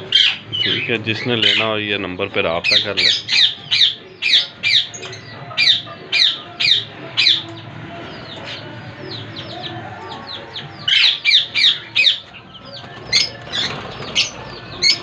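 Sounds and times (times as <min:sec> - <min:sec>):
parrots calling shrilly: 0:00.0 - 0:00.7, 0:02.6 - 0:07.4, 0:10.5 - 0:12.2
birds chirping: 0:00.0 - 0:15.0.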